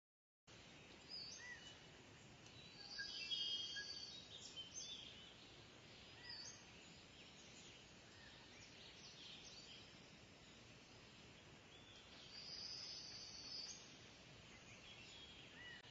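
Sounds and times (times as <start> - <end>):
faint hiss: 0.5 - 15.9
birds chirping and whistling: 1.1 - 1.8, 2.5 - 10.0, 11.8 - 13.9, 14.5 - 15.9.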